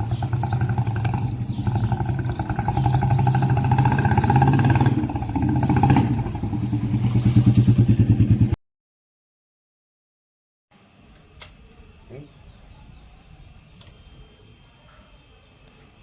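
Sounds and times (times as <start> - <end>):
motorcycle engine thumping: 0.0 - 8.6.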